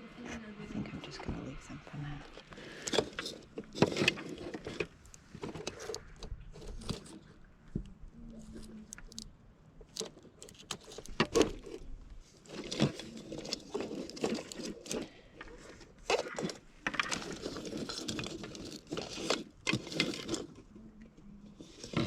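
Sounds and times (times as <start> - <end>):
rustling: 0.3 - 22.0
items knocking and clicking: 2.3 - 7.9, 12.5 - 20.6.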